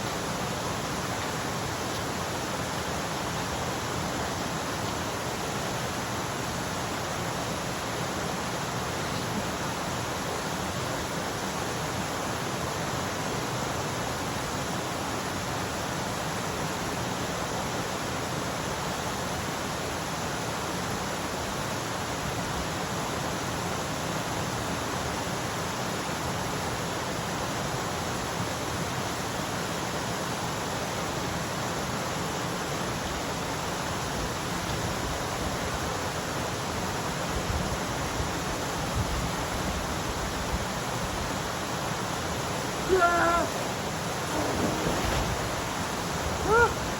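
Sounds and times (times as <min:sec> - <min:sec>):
stream rushing over rocks: 0:00.0 - 0:46.9.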